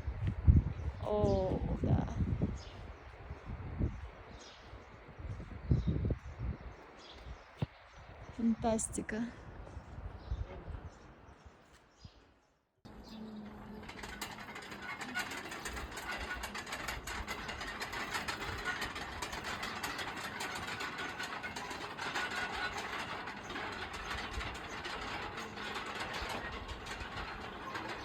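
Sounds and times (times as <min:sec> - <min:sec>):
mechanical clattering and rattling: 0:12.9 - 0:28.0.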